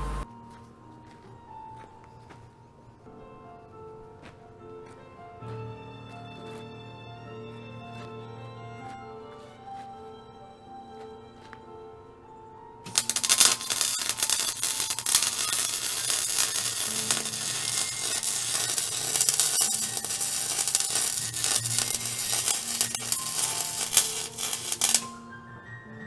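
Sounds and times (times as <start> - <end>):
quiet background music: 0.0 - 26.0
welding arc crackling: 12.9 - 25.2.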